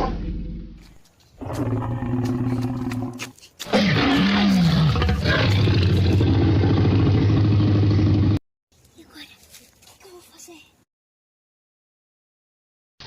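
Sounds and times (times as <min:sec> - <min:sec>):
dinosaur roar: 0:01.4 - 0:08.4.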